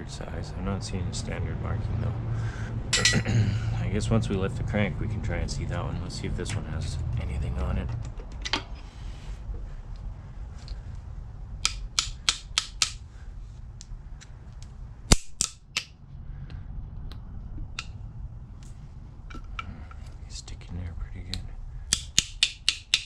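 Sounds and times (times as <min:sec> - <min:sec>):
low steady hum: 0:00.0 - 0:23.0
loud metal clack: 0:02.9 - 0:03.4
metal clicks and taps: 0:21.3 - 0:23.0.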